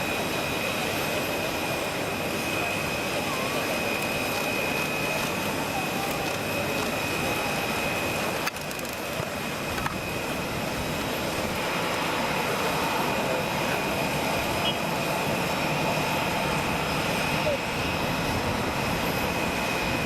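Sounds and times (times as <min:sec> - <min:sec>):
jet engines running: 0:00.0 - 0:20.0.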